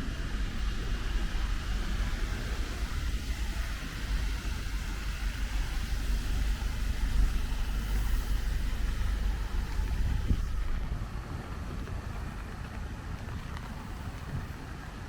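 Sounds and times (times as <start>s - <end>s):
rain hissing: 0.0s - 11.4s.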